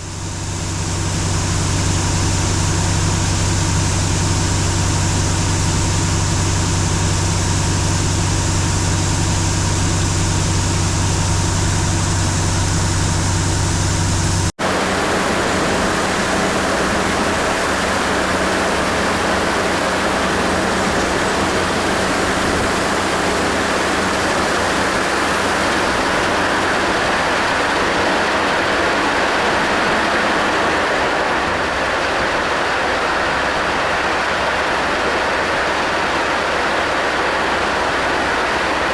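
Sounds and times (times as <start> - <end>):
farm machinery rushing noise: 0.0 - 38.9
heavy engine humming: 0.0 - 38.9.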